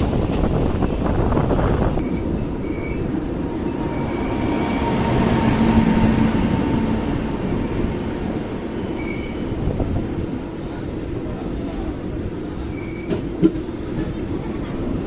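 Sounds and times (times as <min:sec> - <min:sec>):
train wheels rumbling on rail: 0:00.0 - 0:15.0
faint high squeals: 0:02.0 - 0:04.8, 0:09.0 - 0:09.5, 0:12.7 - 0:13.2.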